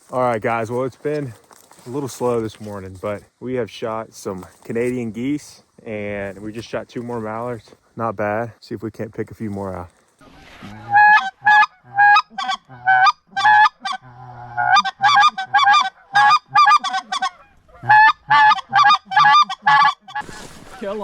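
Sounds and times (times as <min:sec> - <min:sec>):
goose call honks and clucks: 0:10.2 - 0:20.9.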